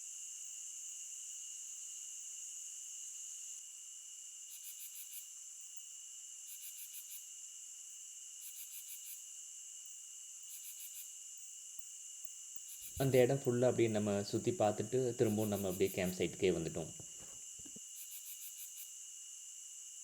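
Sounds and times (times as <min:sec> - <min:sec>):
cricket trill: 0:00.0 - 0:20.0
insect pulsed calls: 0:08.4 - 0:09.2, 0:09.8 - 0:19.1.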